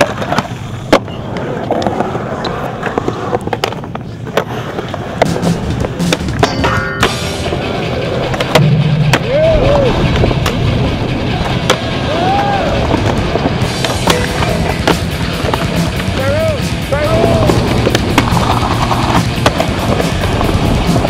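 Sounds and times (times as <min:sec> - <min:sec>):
skateboard clacking down: 0:00.0 - 0:21.0
skateboard wheels rolling: 0:00.0 - 0:21.0
background music: 0:05.1 - 0:21.0.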